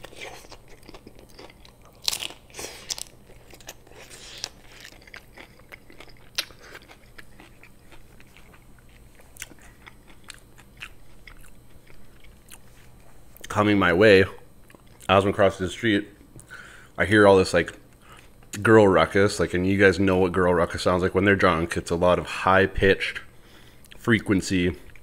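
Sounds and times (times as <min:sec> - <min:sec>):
taco shell crunching: 0:00.0 - 0:12.7
quiet chewing: 0:00.0 - 0:13.6, 0:14.6 - 0:15.1, 0:17.9 - 0:18.6.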